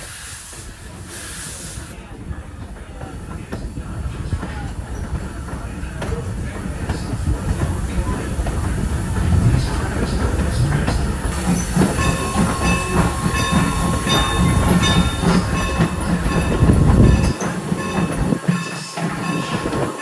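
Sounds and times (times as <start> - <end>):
hiss: 0.0 - 2.0
train rumbling along the track: 0.0 - 20.0
wheel clatter: 2.9 - 20.0.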